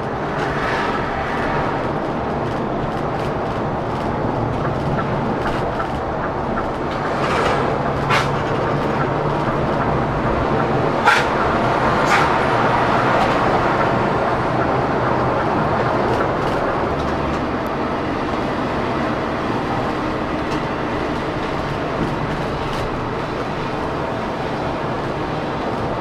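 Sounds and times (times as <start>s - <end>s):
coach engine and road noise: 0.0s - 26.0s.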